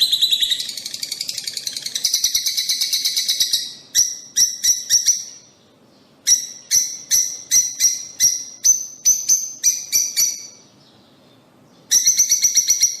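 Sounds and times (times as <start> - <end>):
lovebirds chirping: 0.0 - 13.0.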